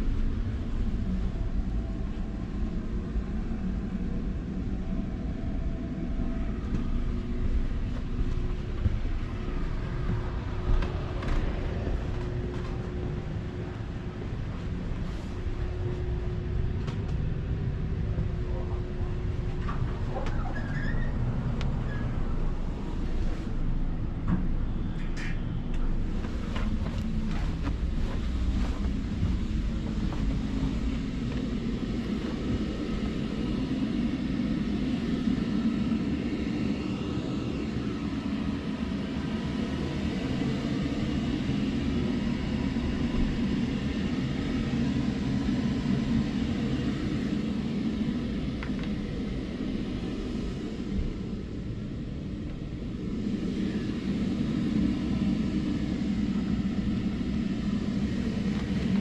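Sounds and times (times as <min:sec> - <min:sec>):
low mechanical rumble: 0:00.0 - 0:59.0.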